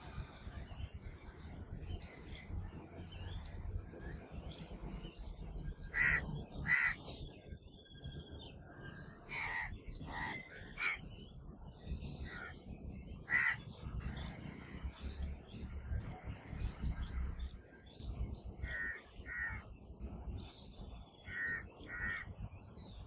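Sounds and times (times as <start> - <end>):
crows cawing: 5.9 - 7.0, 9.3 - 11.0, 12.3 - 12.6, 13.3 - 14.2, 18.6 - 19.6, 21.3 - 22.3.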